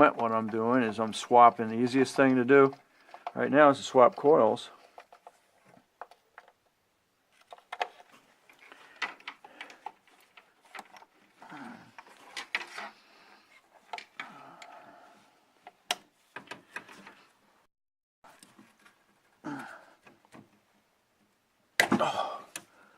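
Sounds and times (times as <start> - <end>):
parts rubbing and rasping: 0.0 - 6.6, 7.3 - 17.4
tools clicking and knocking: 0.0 - 6.7, 7.4 - 12.9.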